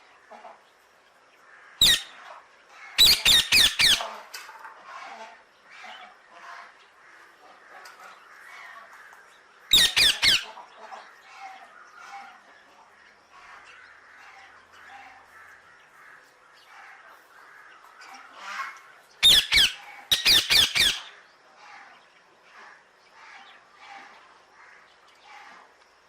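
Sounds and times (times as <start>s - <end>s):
parrot squawking: 1.8s - 2.2s, 3.0s - 4.0s, 9.7s - 10.5s, 19.2s - 21.1s.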